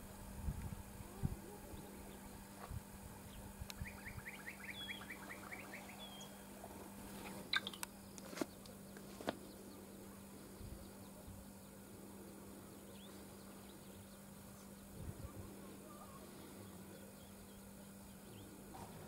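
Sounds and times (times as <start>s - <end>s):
faint steady hum: 0.0s - 19.0s
bird chirping: 3.3s - 6.6s, 7.5s - 11.8s
higher whistled bird notes: 3.8s - 6.5s.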